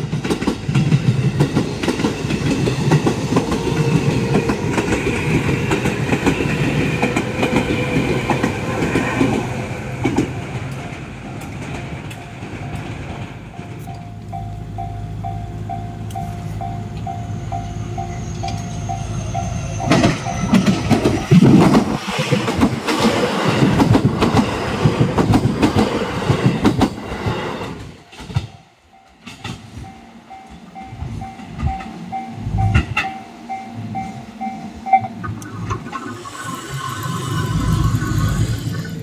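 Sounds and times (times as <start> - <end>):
electric train passing: 0.0 - 39.0
wheels clattering over rail joints: 19.7 - 29.9.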